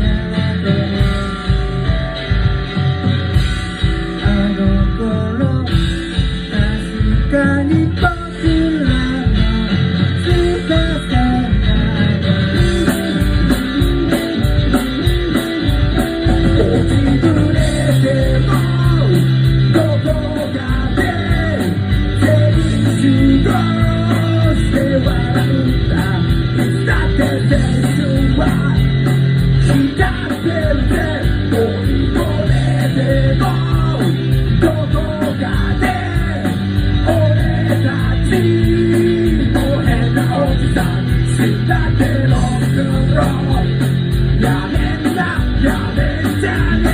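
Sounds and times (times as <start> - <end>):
bass guitar: 0.0 - 46.9
electric guitar: 0.0 - 46.9
steady drum beat: 0.0 - 46.9
person singing: 16.4 - 46.9.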